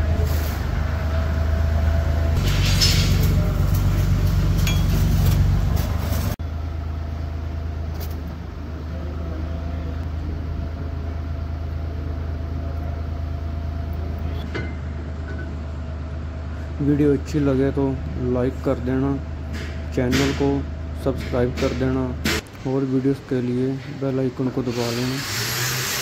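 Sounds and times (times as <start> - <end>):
tractor engine idling: 0.0 - 14.4
light clinks: 4.6 - 5.3.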